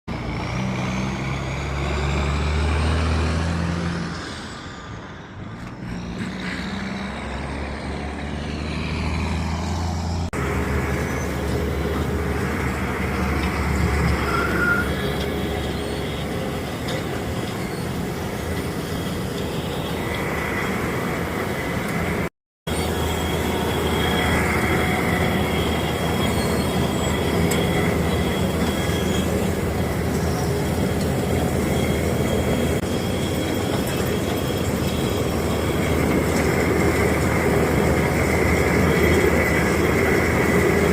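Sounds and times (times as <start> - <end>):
diesel machinery engine drone: 0.1 - 40.9.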